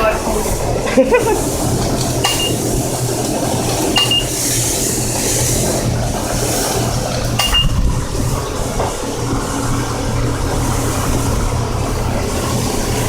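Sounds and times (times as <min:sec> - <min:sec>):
pressure wand spraying water: 0:00.0 - 0:13.0
pump hum: 0:00.0 - 0:13.0
short high beeps: 0:07.4 - 0:07.8.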